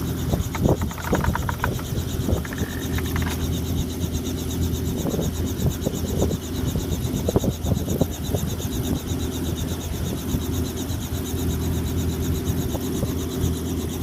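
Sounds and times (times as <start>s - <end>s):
helicopter low hum: 0.0s - 14.0s
rotor blades pulsing whoosh: 0.0s - 14.0s
short knocks: 0.5s - 3.5s.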